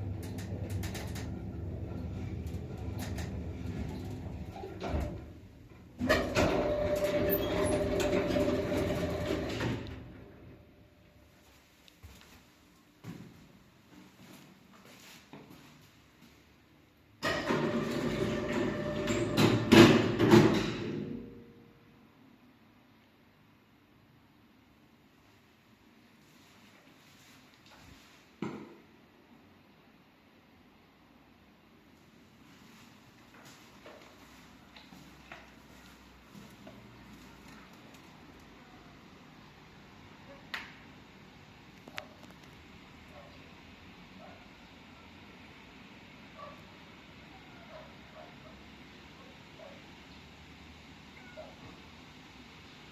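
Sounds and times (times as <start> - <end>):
elevator machinery humming: 0.0 - 10.7.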